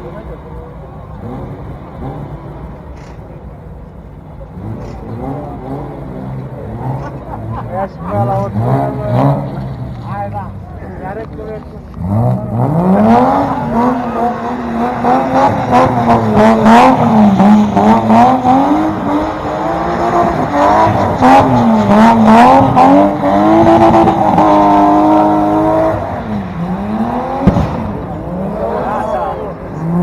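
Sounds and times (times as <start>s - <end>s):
car engine revving hard: 1.0s - 3.1s, 4.4s - 10.2s, 11.8s - 30.0s
sharp exhaust cracks: 13.4s - 28.8s.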